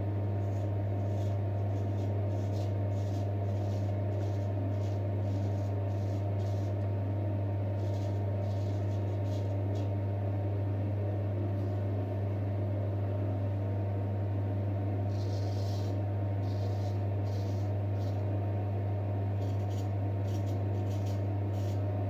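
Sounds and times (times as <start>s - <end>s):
steady low hum: 0.0s - 22.0s
razor scraping stubble: 0.4s - 6.9s, 7.8s - 9.9s, 15.1s - 18.2s, 19.4s - 21.8s.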